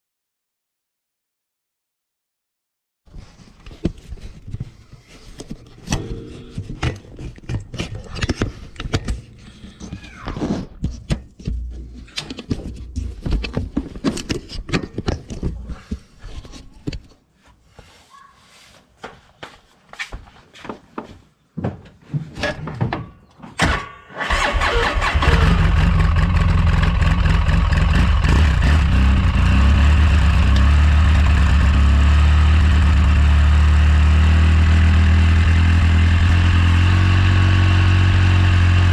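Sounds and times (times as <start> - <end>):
engine starting and idling: 23.6 - 29.3.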